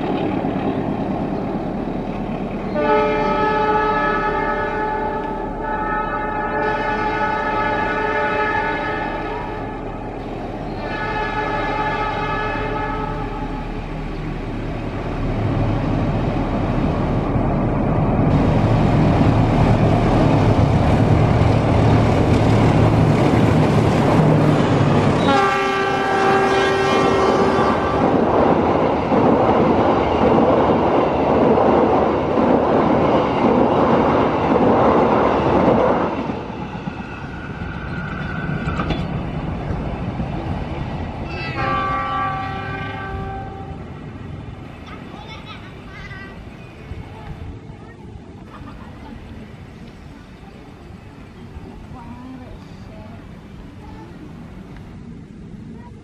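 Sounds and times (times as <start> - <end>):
locomotive horn chord: 2.7 - 9.8, 10.8 - 13.5, 25.2 - 28.2, 41.5 - 43.8
train wheels rattling on bridge: 9.0 - 43.8.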